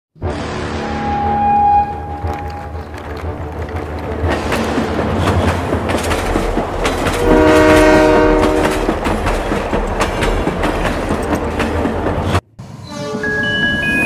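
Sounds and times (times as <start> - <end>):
train horn chord: 0.2 - 2.6, 7.2 - 8.9
train wheels clickety-clack: 2.2 - 12.4.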